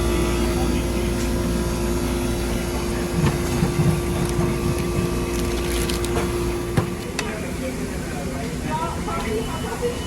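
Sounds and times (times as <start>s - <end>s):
machinery humming: 0.0s - 10.0s.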